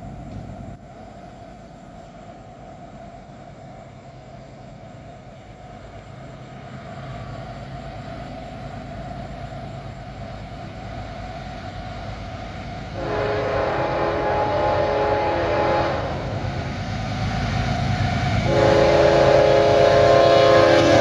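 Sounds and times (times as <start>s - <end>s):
diesel locomotives rumbling: 0.0s - 21.0s
locomotive horn chord: 13.0s - 16.4s, 18.4s - 21.0s.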